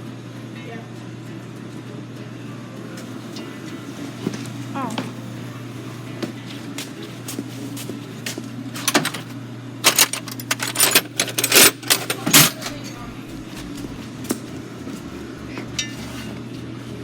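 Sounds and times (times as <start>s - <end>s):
steady low hum: 0.0s - 17.0s
metal hand tools clattering: 8.8s - 13.1s.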